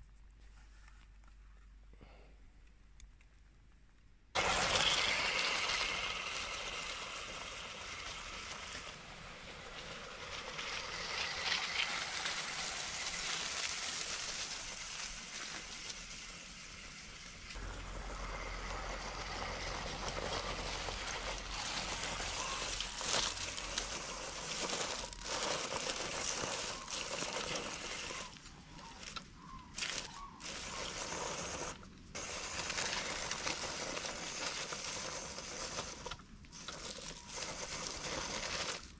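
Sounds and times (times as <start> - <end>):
outdoor hiss: 4.3 - 38.9
rc truck crunching dry leaves and stones: 4.4 - 38.9
low rumble: 17.4 - 23.2.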